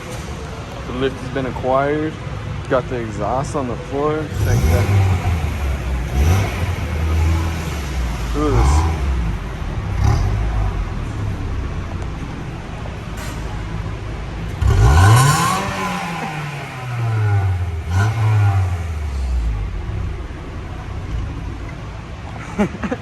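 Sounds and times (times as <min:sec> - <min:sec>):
car engine revving: 0:04.2 - 0:22.3.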